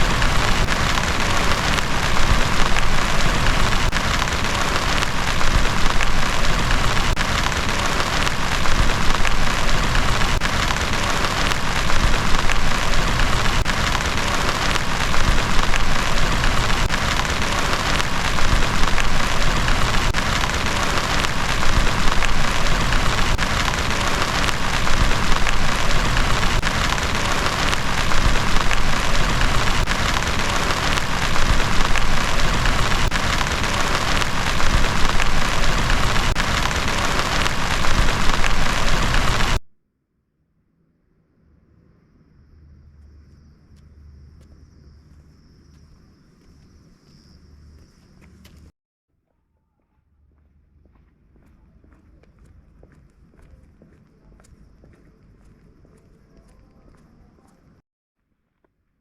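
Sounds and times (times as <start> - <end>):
heavy rain falling: 0.0 - 39.6.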